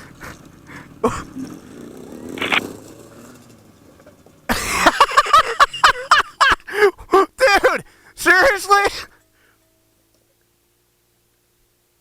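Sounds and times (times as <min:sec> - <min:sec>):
dirt bike engine running: 0:00.0 - 0:05.9.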